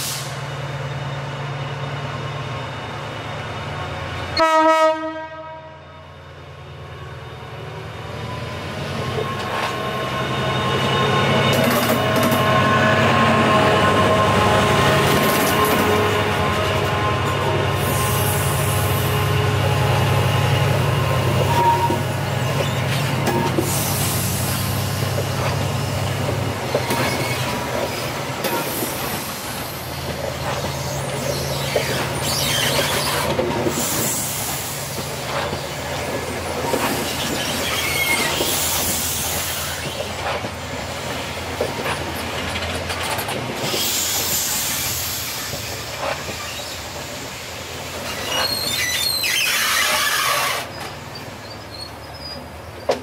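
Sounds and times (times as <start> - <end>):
train coaches rolling past: 0.0 - 53.0
wheels squealing: 30.4 - 34.3, 36.7 - 40.2, 48.0 - 53.0.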